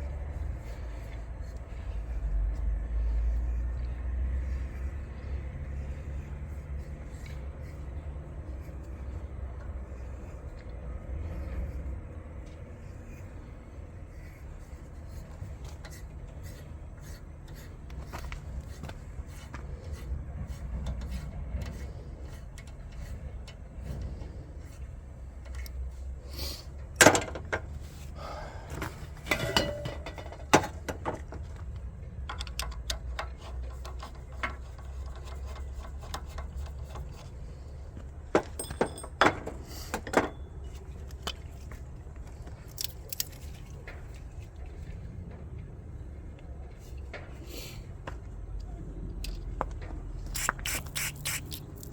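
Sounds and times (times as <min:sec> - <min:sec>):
steady low hum: 0:00.0 - 0:30.6
metal tools clinking: 0:29.2 - 0:30.4, 0:38.4 - 0:40.5.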